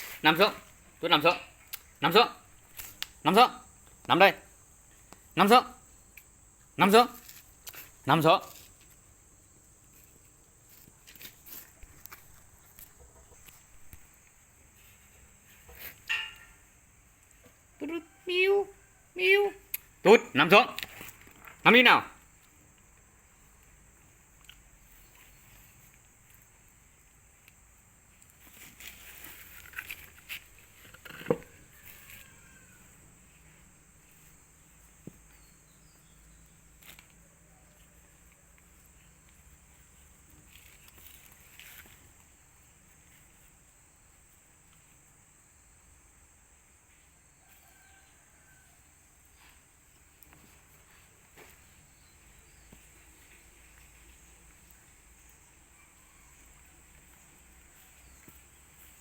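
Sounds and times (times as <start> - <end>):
rustling and scraping: 0.0 - 1.0, 9.8 - 17.6, 20.8 - 21.6, 28.1 - 44.9
high insect drone: 0.0 - 59.0.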